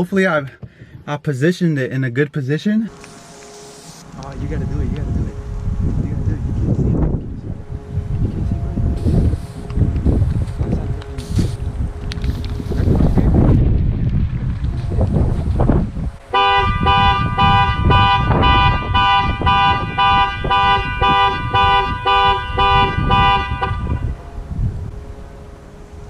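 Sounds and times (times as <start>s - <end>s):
wind buffeting microphone: 0.6s - 1.1s, 4.0s - 26.0s
car horn honking: 16.2s - 26.0s.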